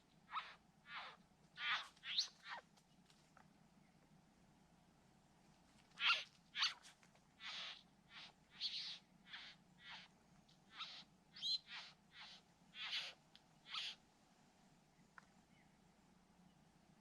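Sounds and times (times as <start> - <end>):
bird harsh rasping calls: 0.3 - 2.6, 6.0 - 6.8, 7.4 - 10.1, 10.7 - 14.0.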